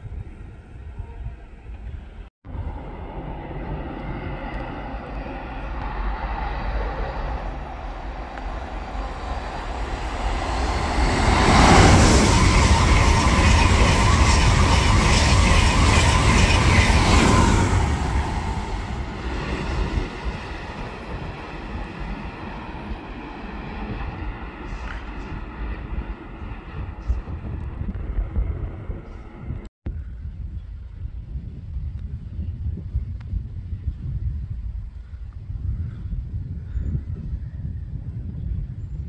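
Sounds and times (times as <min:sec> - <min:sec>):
high-speed train passing: 0:02.5 - 0:29.7.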